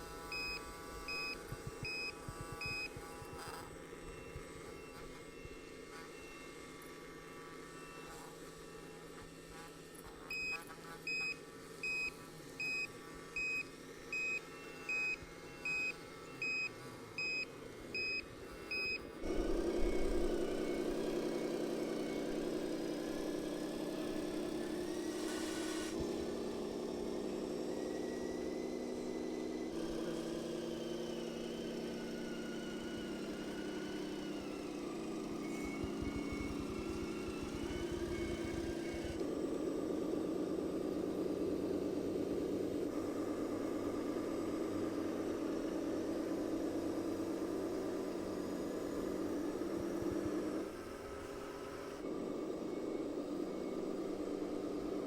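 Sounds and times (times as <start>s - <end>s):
reversing beeper: 35.3s - 39.2s.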